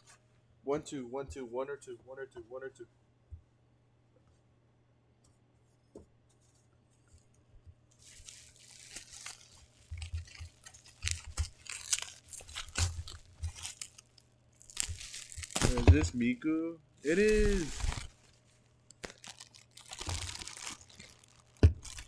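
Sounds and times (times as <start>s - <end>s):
plastic packaging crinkling and tearing: 8.0s - 16.4s, 17.0s - 22.0s.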